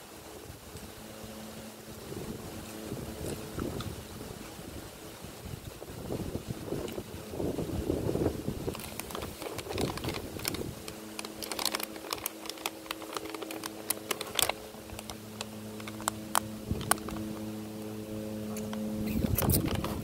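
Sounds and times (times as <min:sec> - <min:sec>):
steady low hum: 0:00.0 - 0:20.0
chewing and mouth noises: 0:02.6 - 0:04.6, 0:08.7 - 0:17.4.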